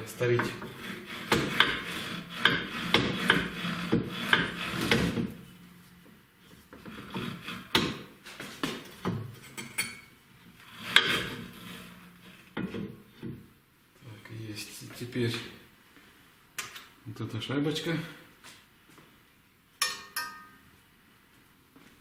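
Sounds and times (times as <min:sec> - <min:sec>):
metal parts scraping and knocking: 0:00.4 - 0:05.8, 0:08.9 - 0:12.8.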